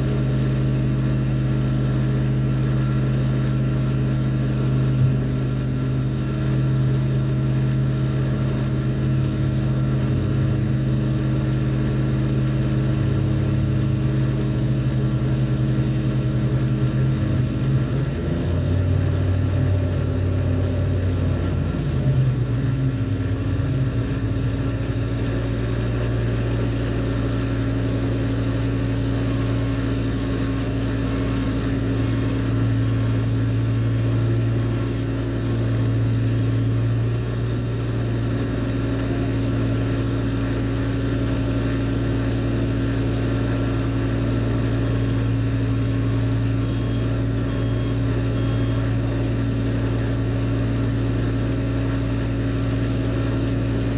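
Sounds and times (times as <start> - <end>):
heavy machinery engine droning: 0.0 - 53.9
faint rapid high beeping: 28.5 - 37.9, 43.2 - 49.6.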